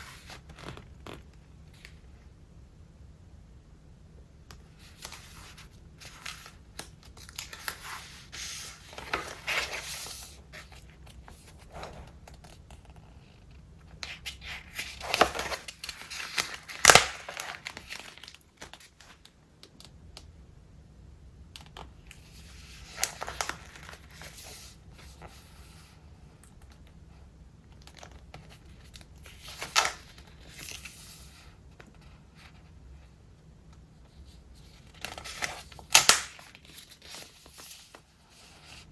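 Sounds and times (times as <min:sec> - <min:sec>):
stiff paper pages turning: 0:00.0 - 0:02.0, 0:04.8 - 0:19.3, 0:22.1 - 0:25.4, 0:27.8 - 0:32.5, 0:34.2 - 0:38.8.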